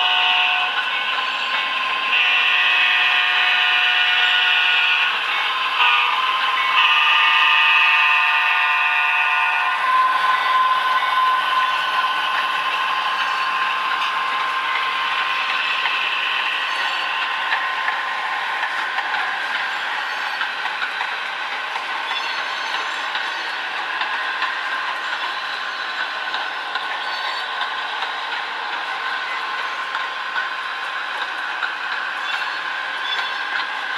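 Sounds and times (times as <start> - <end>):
air horn blasts: 0.0 - 0.7, 2.1 - 5.2, 6.8 - 9.8.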